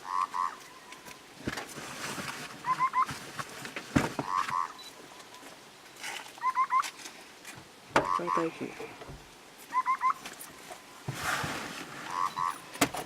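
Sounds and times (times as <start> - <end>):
bird calling: 0.0 - 1.1, 2.6 - 3.2, 4.2 - 5.6, 6.4 - 7.0, 8.0 - 11.0, 12.0 - 12.9.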